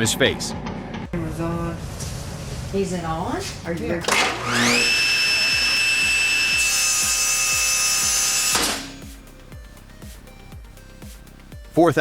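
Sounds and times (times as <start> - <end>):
table saw motor whine: 4.0 - 9.3.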